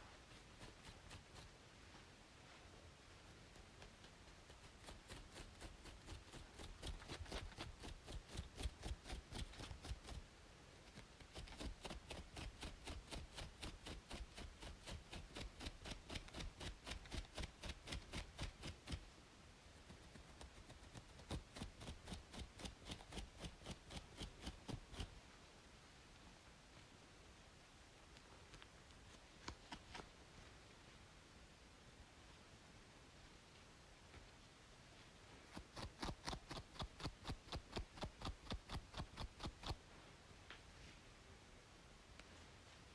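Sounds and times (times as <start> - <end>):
scratching on scalp: 0.0 - 1.6, 3.5 - 10.2, 10.9 - 19.1, 19.8 - 25.2, 28.5 - 30.2, 35.4 - 39.8
white-noise hiss: 0.0 - 42.9.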